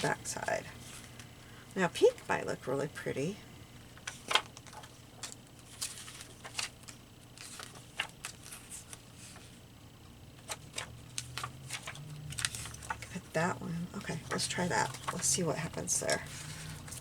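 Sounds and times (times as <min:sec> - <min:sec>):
faint low hum: 0:00.0 - 0:17.0
paper rustling: 0:04.0 - 0:09.6, 0:10.4 - 0:13.3, 0:14.0 - 0:17.0.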